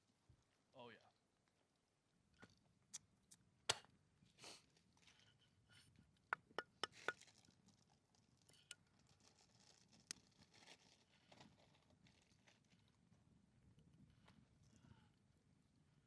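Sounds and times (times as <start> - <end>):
cookware clinking: 6.4 - 7.2.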